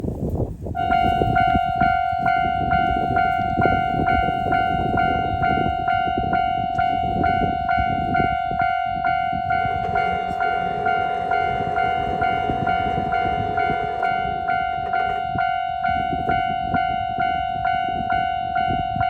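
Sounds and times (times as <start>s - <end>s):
level crossing warning bell: 0.8s - 19.0s.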